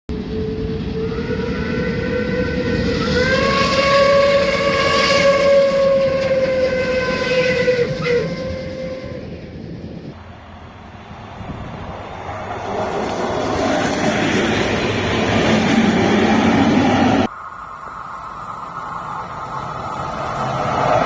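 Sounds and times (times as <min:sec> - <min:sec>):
train rumble: 0:00.1 - 0:21.0
train horn blast: 0:00.9 - 0:09.8.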